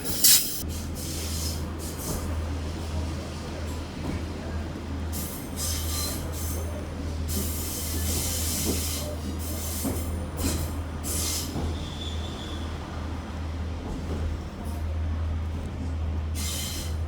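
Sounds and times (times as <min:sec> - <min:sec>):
train running drone: 0:00.0 - 0:05.6.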